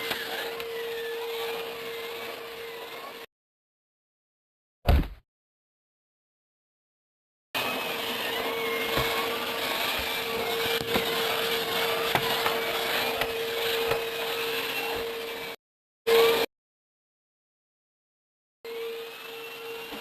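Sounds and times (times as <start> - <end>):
vacuum cleaner running: 0.0 - 3.3, 7.6 - 16.5, 18.7 - 20.0.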